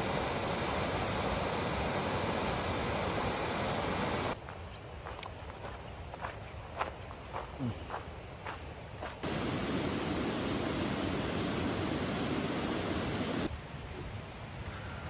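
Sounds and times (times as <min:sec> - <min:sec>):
waterfall rushing: 0:00.0 - 0:04.4, 0:09.2 - 0:13.5.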